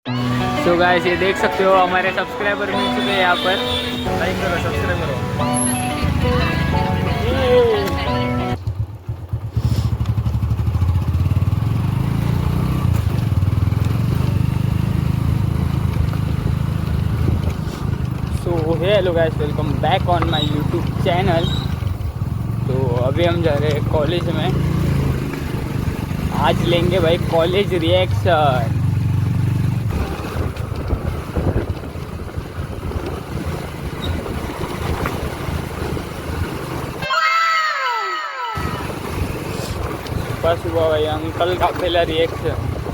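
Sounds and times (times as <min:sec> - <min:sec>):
motorcycle engine rumbling: 0:00.1 - 0:37.2, 0:37.8 - 0:42.9
wind buffeting microphone: 0:29.8 - 0:36.6, 0:42.3 - 0:42.9.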